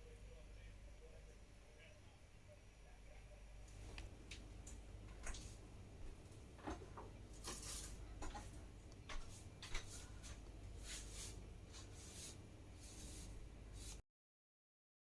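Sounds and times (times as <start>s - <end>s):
steady low hum: 0.0s - 14.0s
soft rustles: 5.2s - 14.0s.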